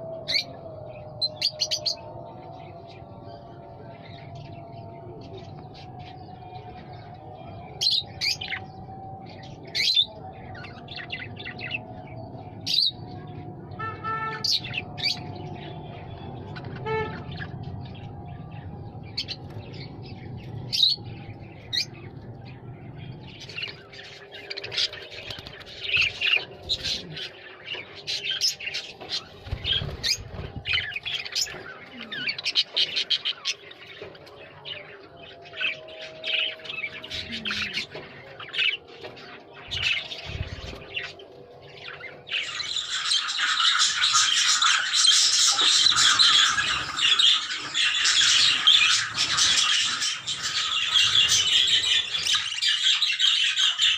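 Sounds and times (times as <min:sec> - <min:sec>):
parrots calling: 0:42.3 - 0:53.9.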